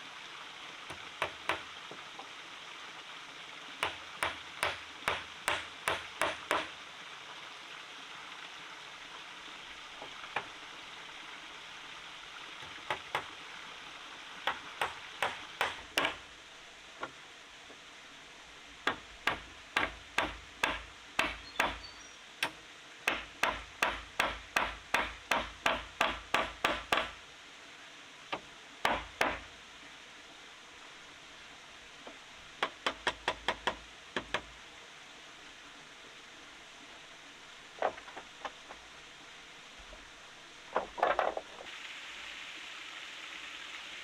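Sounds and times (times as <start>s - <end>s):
faint steady hiss: 0.0s - 44.0s
hand tool striking wood: 0.9s - 1.7s, 3.8s - 6.7s, 14.4s - 16.2s, 18.9s - 27.2s, 28.8s - 29.5s.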